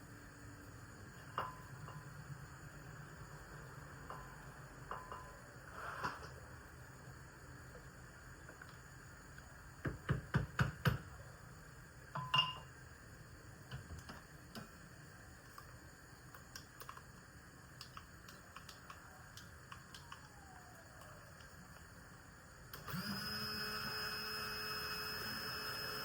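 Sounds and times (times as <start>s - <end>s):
ringing clink: 12.2s - 12.7s.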